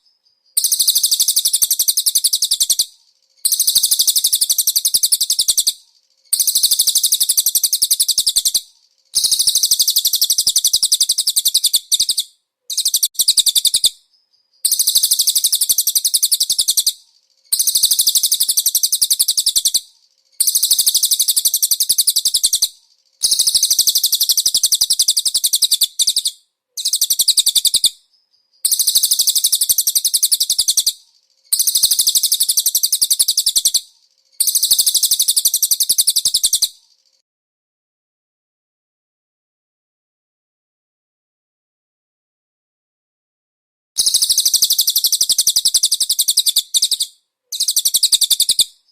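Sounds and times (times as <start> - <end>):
songbird chattering trills: 0.6 - 2.9, 3.5 - 5.8, 6.4 - 8.6, 9.2 - 13.9, 14.6 - 19.8, 20.4 - 27.9, 28.6 - 33.8, 34.4 - 36.7, 44.0 - 48.7.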